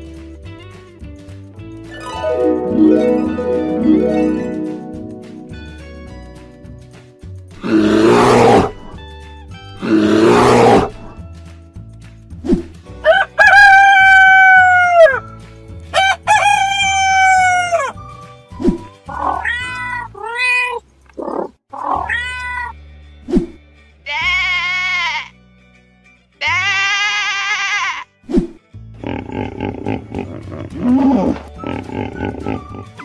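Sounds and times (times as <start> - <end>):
background music: 0.0 - 20.3, 21.8 - 33.0
bear roaring: 7.6 - 8.9, 9.8 - 11.1, 29.0 - 33.0
rooster crowing: 13.0 - 15.2, 16.0 - 17.9
cat meowing: 19.1 - 20.8, 21.8 - 22.7
sheep bleating: 24.0 - 25.4, 26.4 - 28.1.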